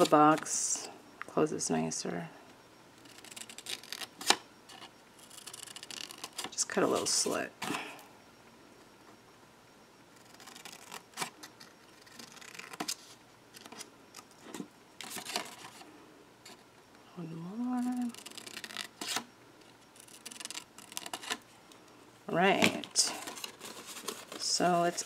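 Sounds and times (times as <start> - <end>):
paper rustling: 22.6 - 25.0.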